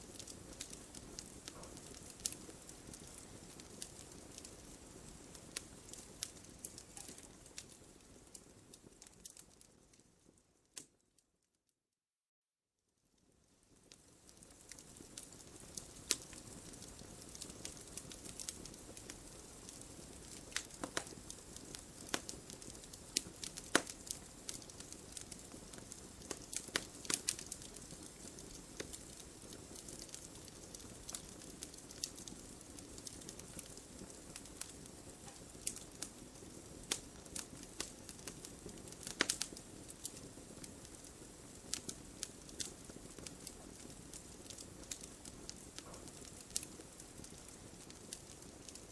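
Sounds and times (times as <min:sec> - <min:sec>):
wood fire crackling: 0:00.0 - 0:11.0, 0:13.2 - 0:48.9.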